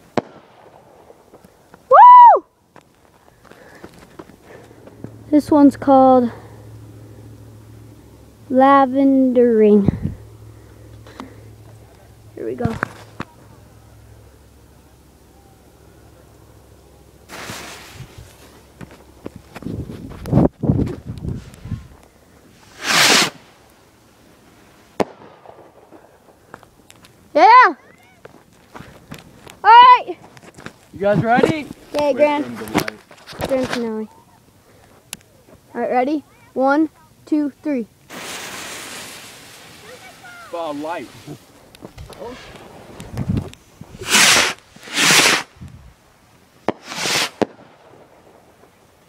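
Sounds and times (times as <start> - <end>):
firework burst crack: 0.0 - 1.7, 17.3 - 18.0, 22.5 - 23.9, 24.8 - 26.6, 38.0 - 45.8, 46.6 - 49.0
firework rocket whoosh: 17.3 - 18.5, 21.3 - 23.7, 38.1 - 45.9, 46.6 - 48.6.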